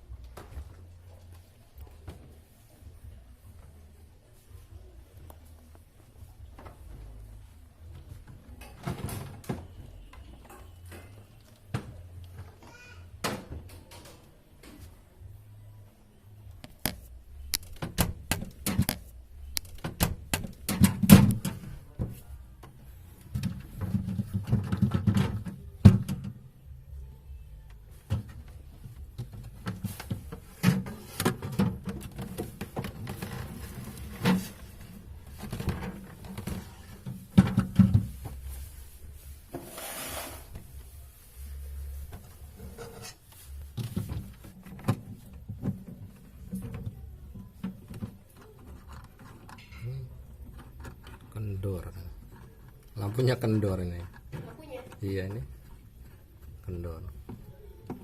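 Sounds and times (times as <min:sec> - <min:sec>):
plastic parts clicking and scraping: 0:16.6 - 0:21.7, 0:29.2 - 0:38.1, 0:42.1 - 0:58.0.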